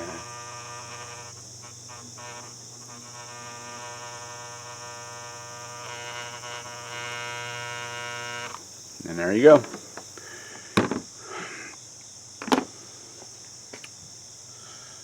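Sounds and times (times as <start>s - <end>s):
soldering tool buzzing: 0.0s - 10.0s.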